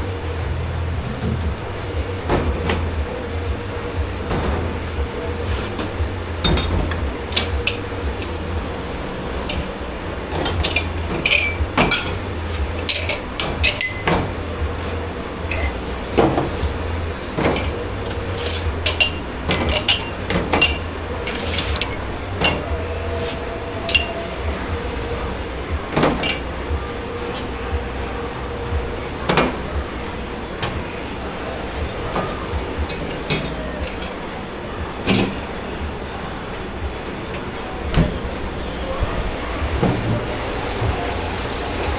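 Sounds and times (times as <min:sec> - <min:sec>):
steady low hum: 0:00.0 - 0:41.9
dishes and cutlery clattering: 0:04.2 - 0:27.6, 0:31.7 - 0:34.4, 0:35.0 - 0:35.6.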